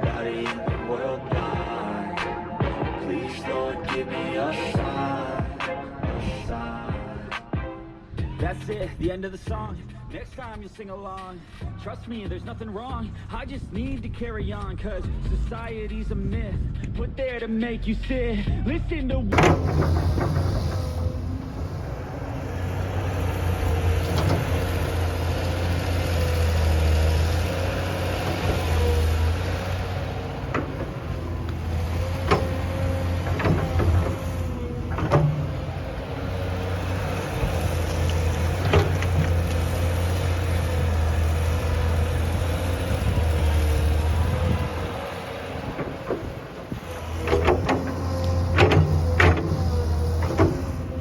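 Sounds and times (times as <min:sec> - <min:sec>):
large vehicle engine running: 0:08.2 - 0:51.0
short clicks and knocks: 0:30.5 - 0:35.5, 0:47.2 - 0:50.8.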